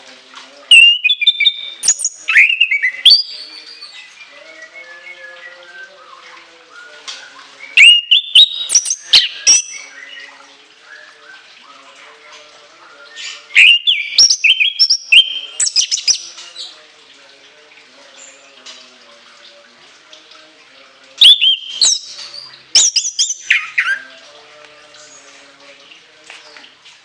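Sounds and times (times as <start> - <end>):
thrush singing shrill notes: 0.7 - 4.0, 7.7 - 10.1, 21.2 - 24.1.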